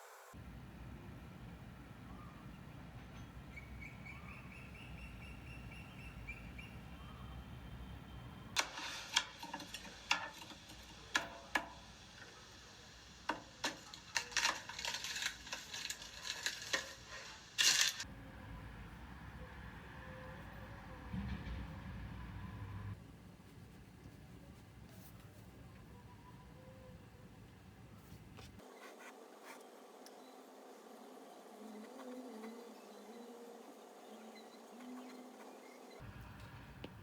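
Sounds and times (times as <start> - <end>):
rustling: 13.6 - 18.0.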